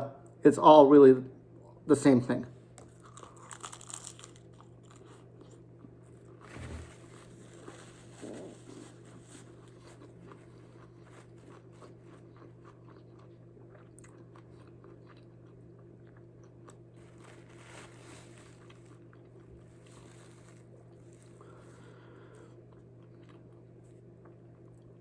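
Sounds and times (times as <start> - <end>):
steady low hum: 0.0 - 25.0
person chewing food: 2.8 - 6.4, 7.5 - 17.4, 18.6 - 25.0.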